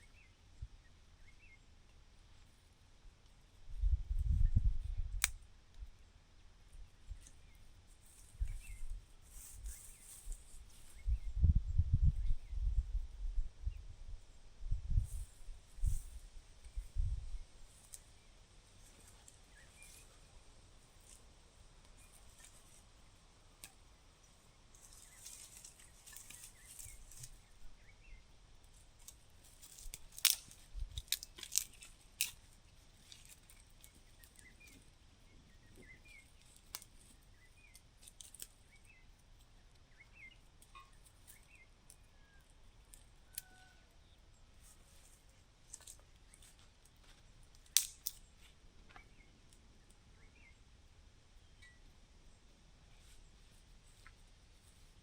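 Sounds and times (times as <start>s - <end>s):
sharp snaps: 5.1s - 5.4s, 47.5s - 48.2s
rustling: 7.1s - 11.1s, 18.7s - 27.6s.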